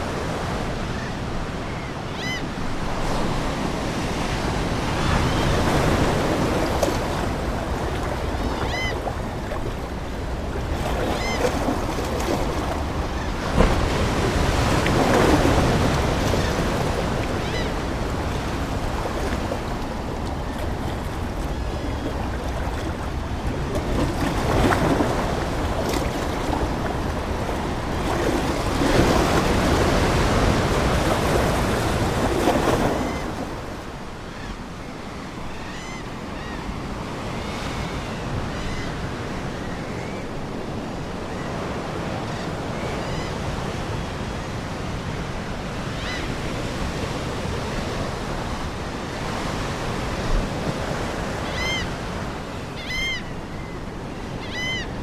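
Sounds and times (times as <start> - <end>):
ocean waves washing ashore: 0.0 - 55.0
seagulls calling: 0.9 - 2.6, 5.0 - 34.6, 35.4 - 36.9, 50.8 - 55.0.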